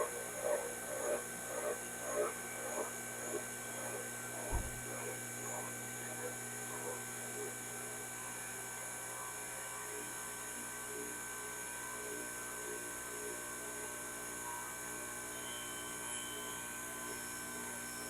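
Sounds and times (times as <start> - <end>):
machine hum: 0.0 - 8.1.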